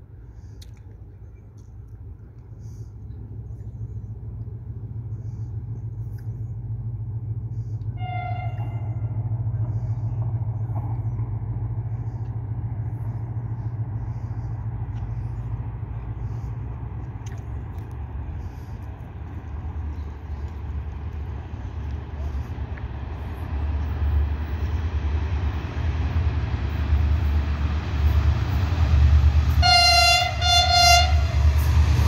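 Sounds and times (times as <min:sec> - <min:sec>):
diesel locomotive rumble: 0:00.0 - 0:32.0
train horn note: 0:08.0 - 0:09.2, 0:29.5 - 0:31.7.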